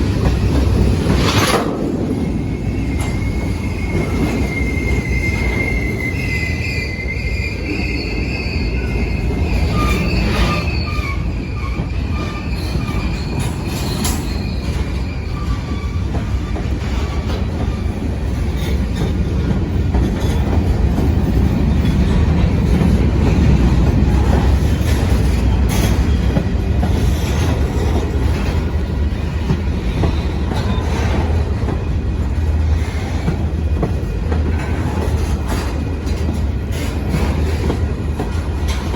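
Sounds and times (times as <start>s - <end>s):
train cars rolling rumble: 0.0s - 38.9s
high wheel squeal: 2.1s - 19.1s
wheels clicking over rail joints: 11.8s - 38.9s.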